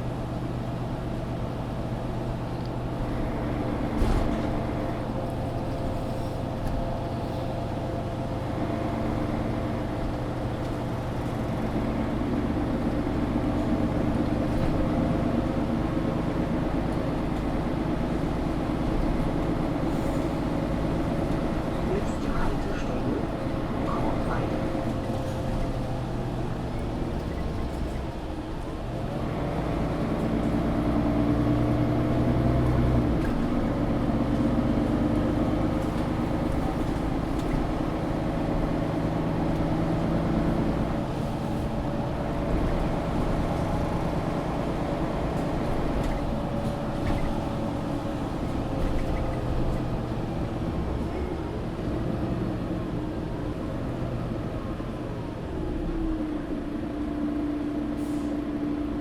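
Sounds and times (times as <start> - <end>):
bus diesel engine: 0.0 - 59.0
road and tyre noise: 0.0 - 59.0.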